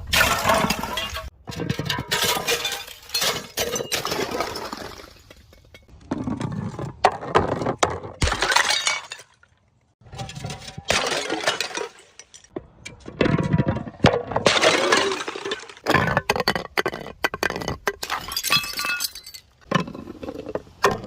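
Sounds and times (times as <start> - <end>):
glass bottles shattering: 0.1 - 5.9, 8.2 - 9.4, 10.2 - 12.5, 14.4 - 16.0, 18.0 - 19.7.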